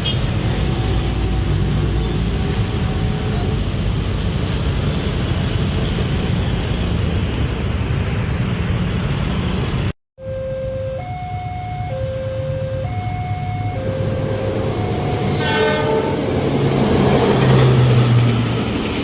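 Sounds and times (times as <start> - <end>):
train engine drone: 11.0 - 19.0
train wheels rumbling on rails: 14.0 - 19.0.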